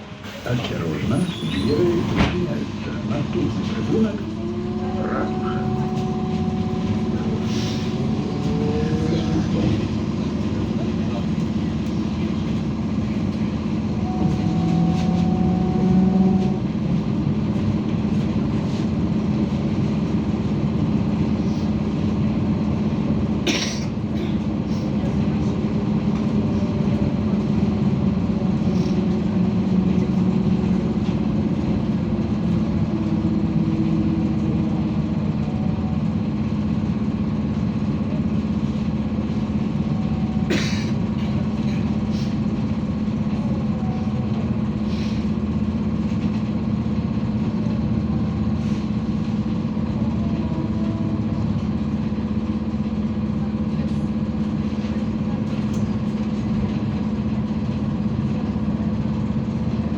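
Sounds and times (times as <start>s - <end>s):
whine shifting in pitch: 3.9s - 10.3s, 14.0s - 16.8s.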